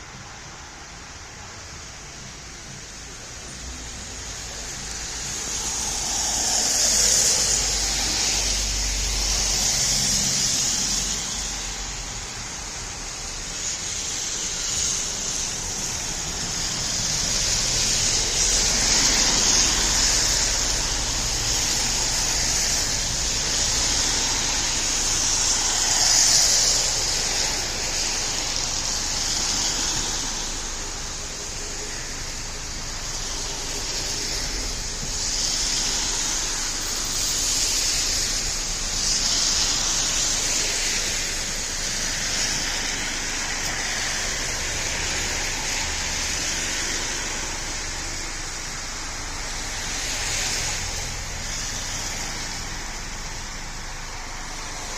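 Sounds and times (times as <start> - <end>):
vehicles passing on road: 0.0 - 54.9.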